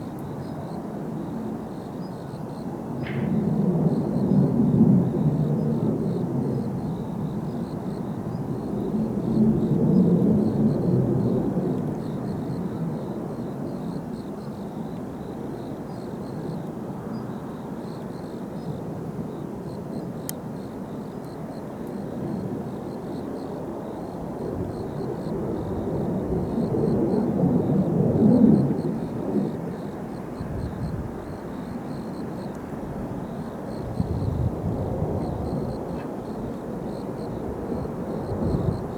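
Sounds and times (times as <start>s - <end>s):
distant jets rumbling: 3.0s - 13.1s.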